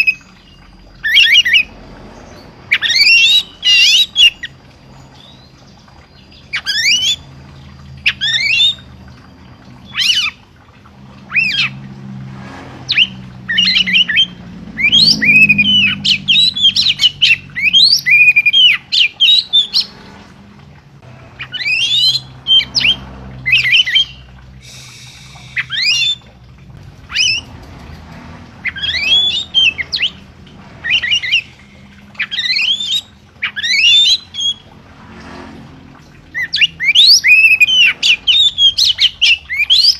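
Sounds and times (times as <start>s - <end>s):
songbird squawky calls: 21.4s - 26.4s, 28.6s - 30.2s, 30.8s - 34.7s, 36.3s - 39.9s.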